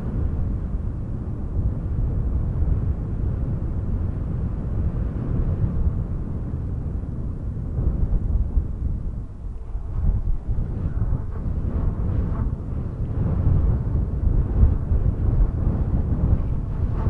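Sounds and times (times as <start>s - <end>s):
gusty wind buffeting microphone: 0.0s - 17.0s.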